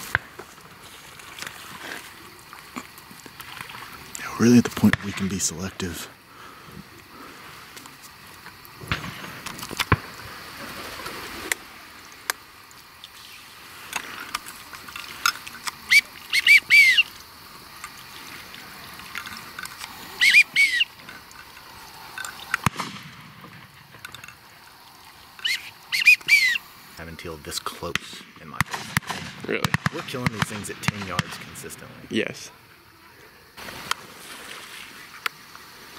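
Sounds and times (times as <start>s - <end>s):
duck whistled peeps: 15.9s - 17.1s, 20.2s - 20.9s, 25.4s - 26.6s.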